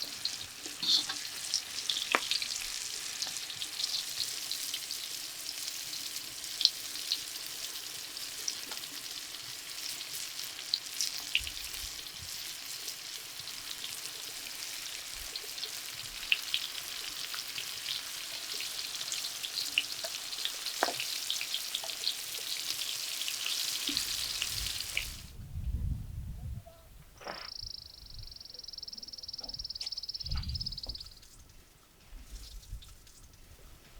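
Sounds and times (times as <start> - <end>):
food sizzling in hot oil: 0.0 - 25.3
oil crackling pops: 0.6 - 3.7.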